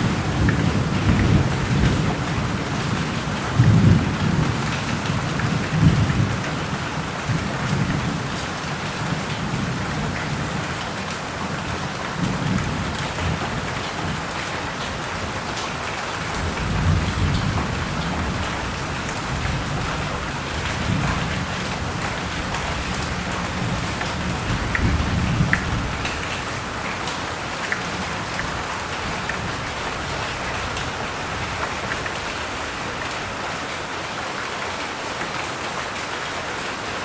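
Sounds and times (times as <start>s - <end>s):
thunder rumbling: 0.0s - 8.4s, 16.3s - 26.8s
heavy rain: 0.0s - 37.0s.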